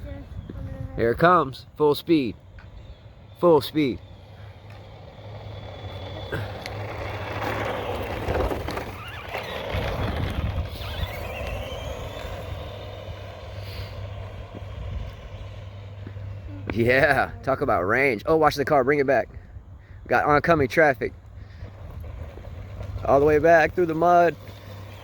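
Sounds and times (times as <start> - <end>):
electric motor whine: 2.4 - 17.7, 21.6 - 25.0
tyre noise on road: 2.4 - 18.1, 21.1 - 25.0.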